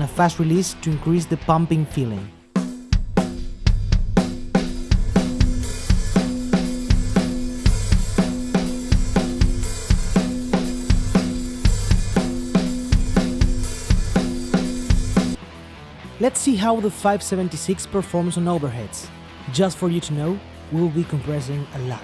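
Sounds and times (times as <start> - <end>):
compressed drum kit groove: 0.0 - 15.4.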